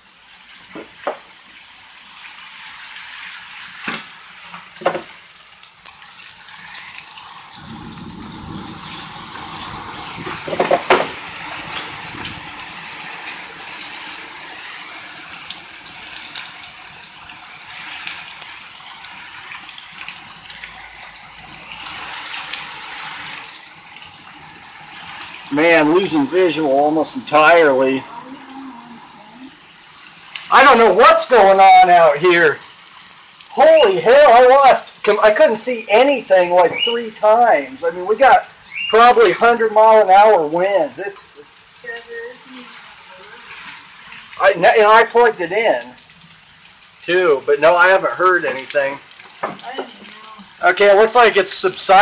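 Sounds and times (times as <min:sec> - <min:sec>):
heavy rain hissing: 0:06.3 - 0:46.0, 0:46.9 - 0:52.0
strong wind gusts: 0:07.6 - 0:12.8
sharp knocks: 0:10.2 - 0:11.2.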